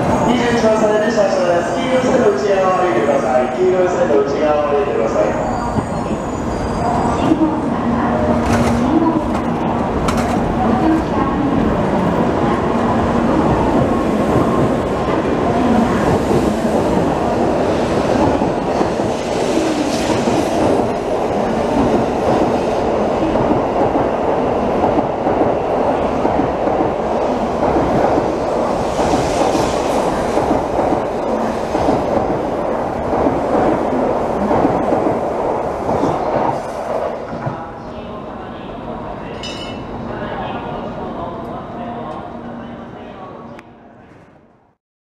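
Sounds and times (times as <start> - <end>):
train wheels rumbling on rail: 5.2 - 37.8.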